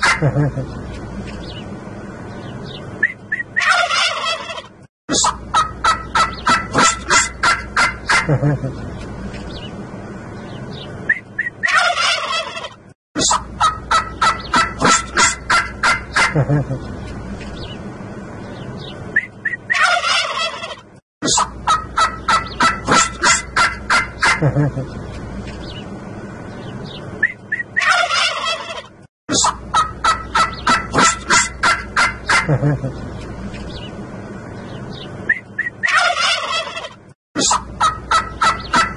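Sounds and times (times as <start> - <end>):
turkeys gobbling: 0.0 - 0.8, 3.0 - 8.8, 11.1 - 16.8, 19.2 - 25.0, 27.2 - 33.0, 35.3 - 38.9.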